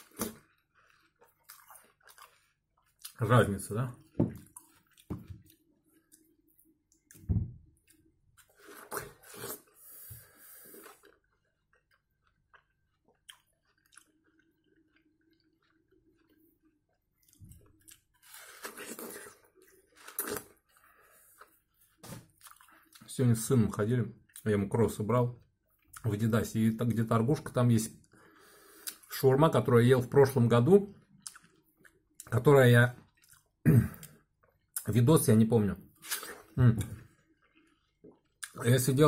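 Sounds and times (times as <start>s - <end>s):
person chewing watermelon: 0.0s - 7.2s, 7.8s - 23.1s, 31.0s - 32.4s, 33.0s - 34.9s, 35.9s - 38.6s.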